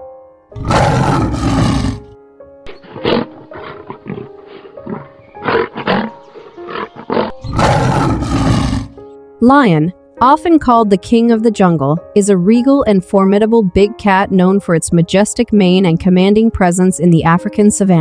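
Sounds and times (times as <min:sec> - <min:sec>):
lion roaring: 0:00.6 - 0:02.1, 0:02.7 - 0:09.0.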